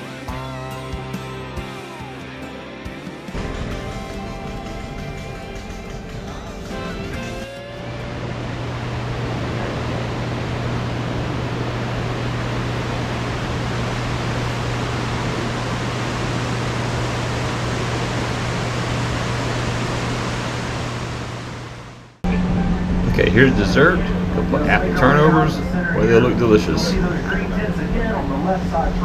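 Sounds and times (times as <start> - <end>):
low hum: 3.3 - 29.0
moving railcar rushing noise: 3.3 - 29.0.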